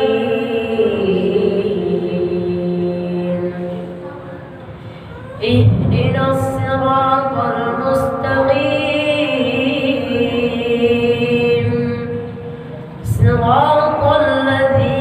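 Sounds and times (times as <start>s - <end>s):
child chanting melodically: 5.1s - 12.1s.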